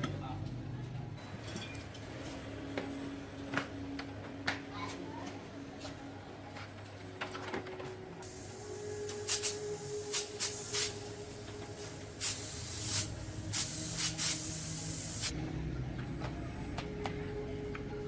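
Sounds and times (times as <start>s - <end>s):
spray hissing in spurts: 8.2s - 15.3s
steady hiss: 8.2s - 15.3s.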